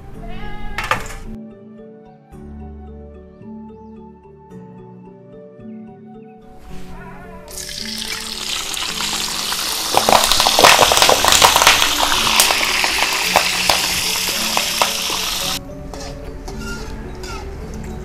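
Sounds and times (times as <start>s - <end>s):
leaves sizzling in hot oil: 7.5s - 15.6s.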